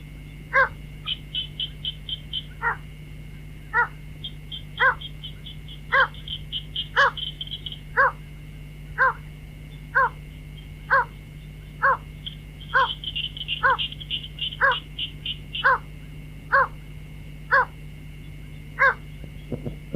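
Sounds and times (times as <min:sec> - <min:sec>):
faint rapid high chirping: 0:01.0 - 0:02.8, 0:03.7 - 0:08.3, 0:09.0 - 0:15.9
waterhen hoarse calls: 0:03.7 - 0:08.2, 0:12.7 - 0:15.9.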